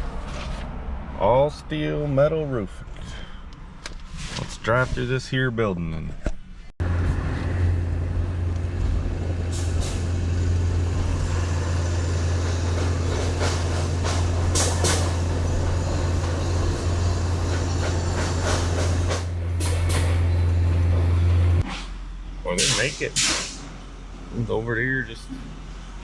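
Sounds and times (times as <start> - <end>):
vehicle engine low drone: 6.8 - 21.6
short rattles: 8.5 - 21.6.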